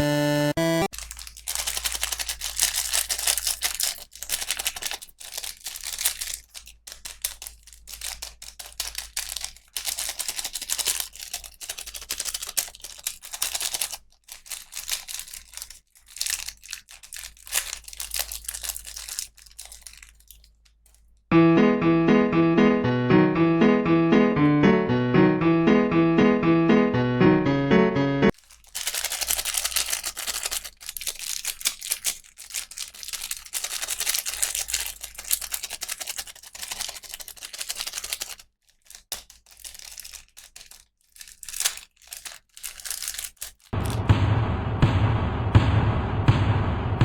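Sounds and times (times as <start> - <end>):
electric piano music: 0.0 - 0.9, 21.3 - 28.3
plastic packaging crinkling and tearing: 0.9 - 21.3, 28.3 - 43.8.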